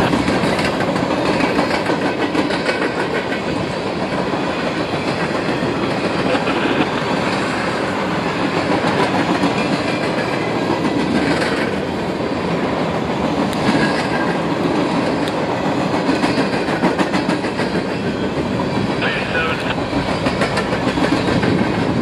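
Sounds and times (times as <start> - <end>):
wheels clattering over rail joints: 0.0 - 7.6, 8.3 - 19.0, 19.7 - 22.0
freight train cars rolling past: 0.0 - 22.0.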